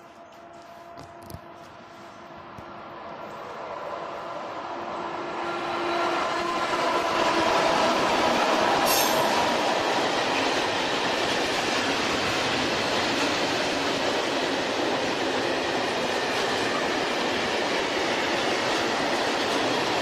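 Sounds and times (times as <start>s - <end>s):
electric locomotive whine: 0.0s - 20.0s
train wagons rumbling and rattling: 5.8s - 20.0s.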